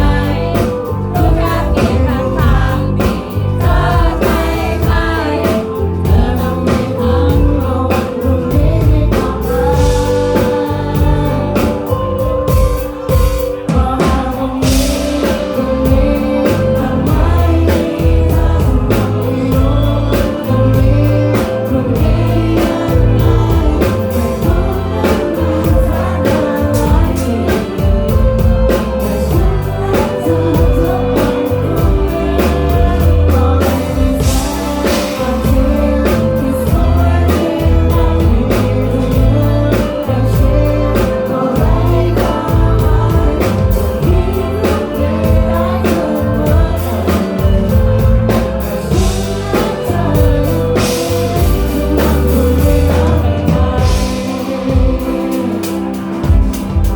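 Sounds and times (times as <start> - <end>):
live band playing: 0.0 - 56.9
person singing: 0.0 - 56.9.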